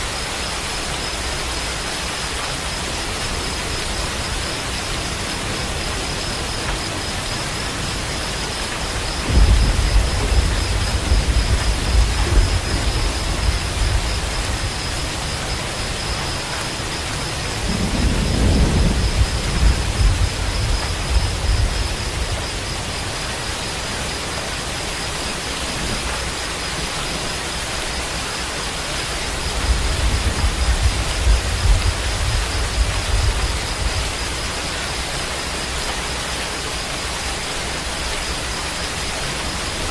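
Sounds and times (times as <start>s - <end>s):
heavy rain: 0.0s - 39.9s
low rolls of thunder: 5.2s - 23.3s, 29.2s - 35.1s.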